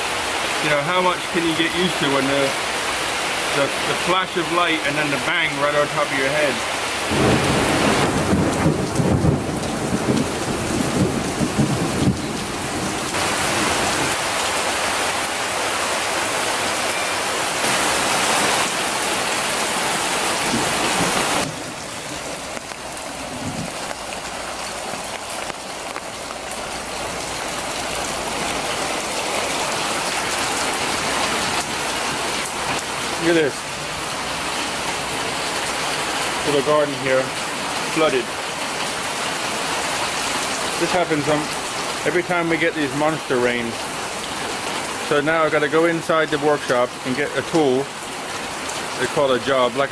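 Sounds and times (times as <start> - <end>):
heavy rain pouring: 0.0 - 49.9
low rumbling: 6.6 - 36.6.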